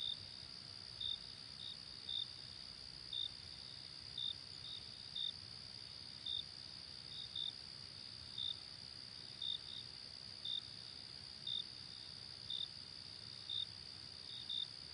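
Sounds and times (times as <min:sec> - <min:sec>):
cricket chirping: 0:00.0 - 0:14.9.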